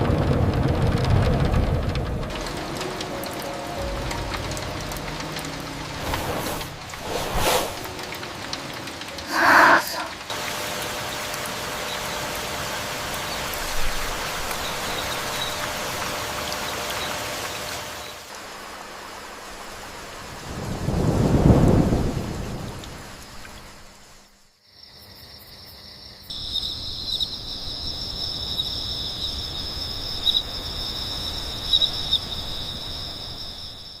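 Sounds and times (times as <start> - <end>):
low thunder roll: 0.0 - 2.9, 20.5 - 23.1
steady rain: 0.0 - 24.6, 26.3 - 34.0
insects trilling: 7.2 - 10.3, 24.6 - 34.0.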